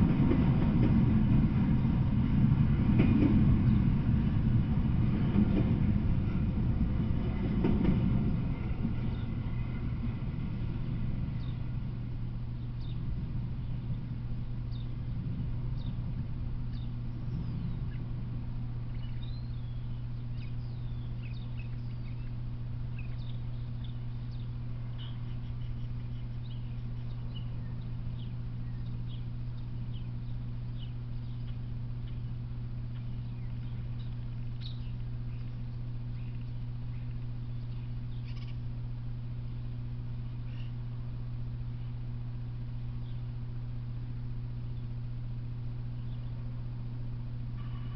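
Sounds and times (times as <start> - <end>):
freight train rumbling on rails: 0.0 - 47.9
low steady hum: 0.0 - 47.9
bird chirps: 12.6 - 14.0, 18.9 - 38.7, 40.4 - 40.8.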